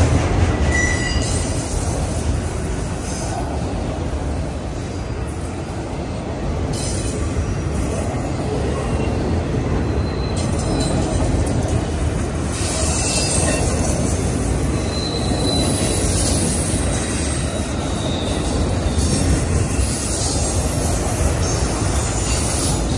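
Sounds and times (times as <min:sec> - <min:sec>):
train wheels rumbling on rail: 0:00.0 - 0:22.9
faint wheel squeals: 0:09.8 - 0:22.0.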